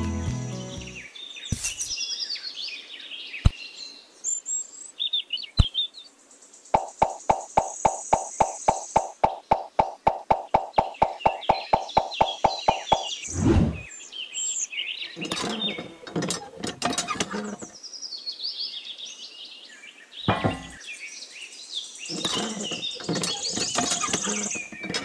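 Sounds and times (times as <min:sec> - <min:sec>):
small birds chirping: 0:00.2 - 0:25.0
quick evenly spaced clicks: 0:06.8 - 0:13.2.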